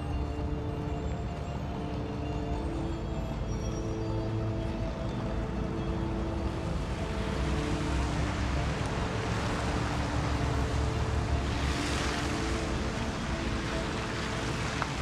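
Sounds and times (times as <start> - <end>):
faint background music tones: 0.0 - 15.0
low rushing noise: 4.8 - 15.0.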